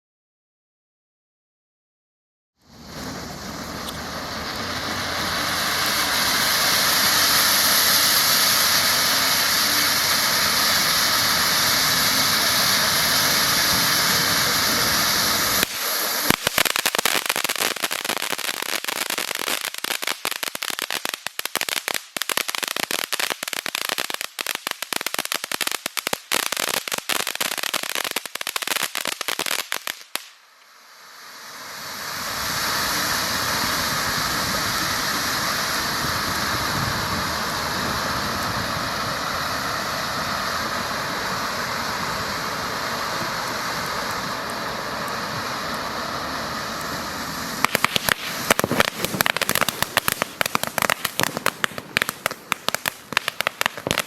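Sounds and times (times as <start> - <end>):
firework dense crackling: 2.6 - 54.0
firework fountain hissing: 2.6 - 54.0.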